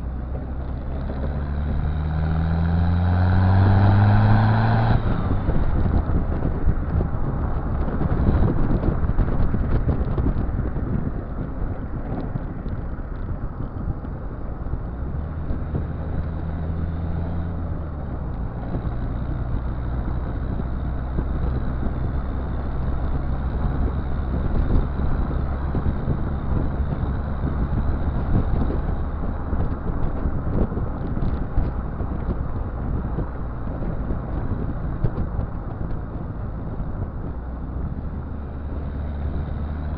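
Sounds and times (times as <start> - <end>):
diesel engine exhaust droning: 0.0 - 39.9.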